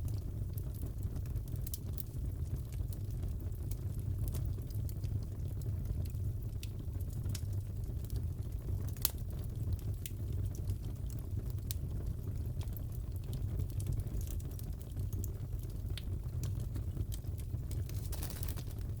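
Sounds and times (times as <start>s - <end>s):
crackles and pops of fire: 0.0s - 19.0s
wood fire burning: 0.0s - 19.0s.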